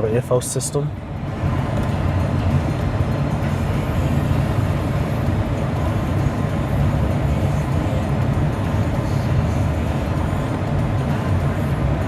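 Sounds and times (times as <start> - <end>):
pickup truck idling from inside cabin: 0.3 - 12.0.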